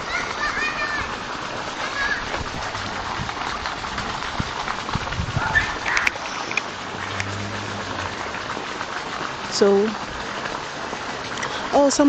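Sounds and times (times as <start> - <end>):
running pond water: 0.0 - 12.0.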